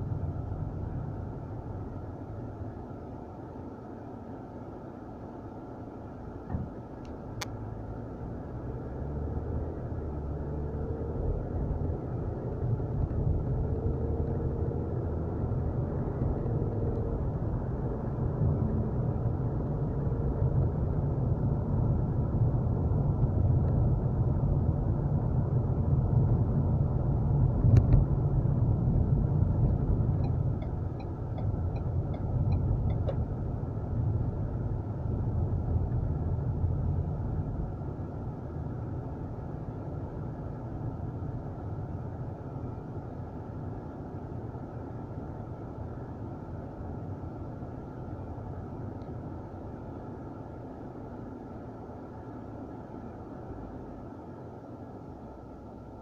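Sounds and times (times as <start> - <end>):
car engine and road rumble: 0.0 - 56.0
faint regular ticking: 30.2 - 33.2.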